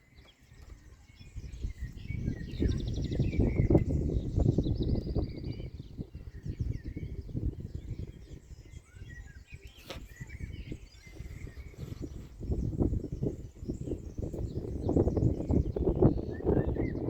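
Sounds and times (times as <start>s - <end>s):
birds chirping: 0.0s - 17.0s
wind on microphone: 0.0s - 17.0s.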